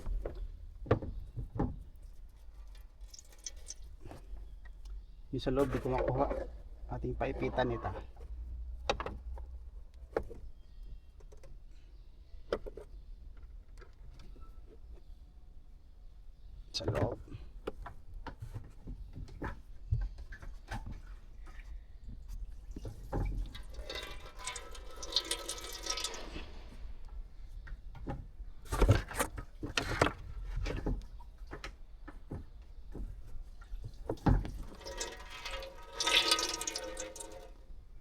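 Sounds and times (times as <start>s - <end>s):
liquid sloshing and dripping: 2.0s - 4.9s, 20.3s - 27.8s, 28.8s - 37.8s.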